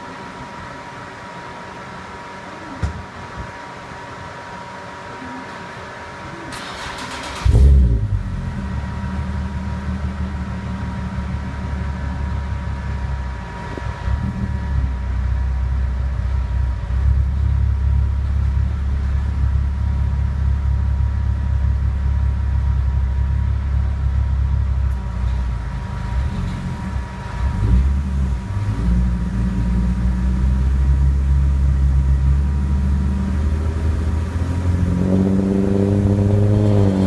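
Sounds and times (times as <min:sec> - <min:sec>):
car engine starting and idling: 0:06.4 - 0:37.0.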